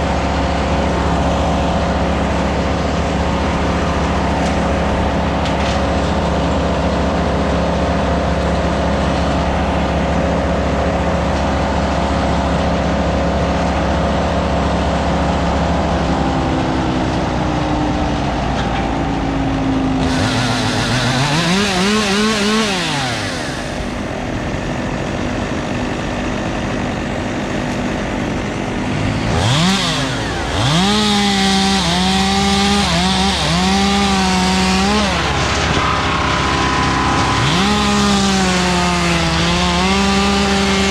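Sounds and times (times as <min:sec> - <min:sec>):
machinery engine drone: 0:00.0 - 0:40.9
chainsaw revving: 0:20.0 - 0:40.9.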